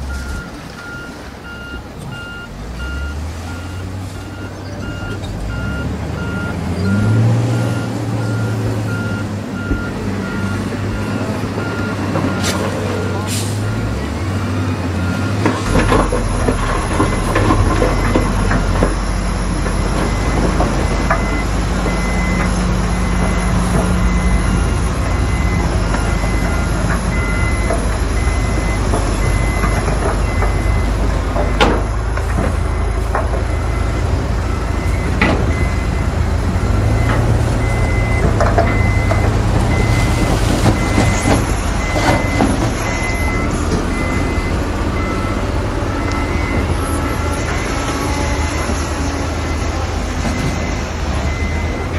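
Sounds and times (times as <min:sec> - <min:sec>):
heavy diesel machinery running: 0:00.0 - 0:51.9
reversing alarm beeping: 0:00.1 - 0:51.9.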